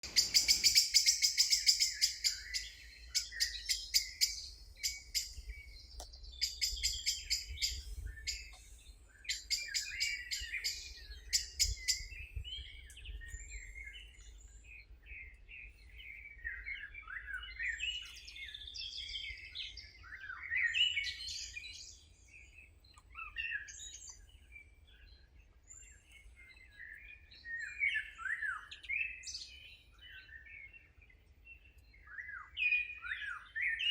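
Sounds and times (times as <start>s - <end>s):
birds singing trills and warbles: 0.0s - 33.9s.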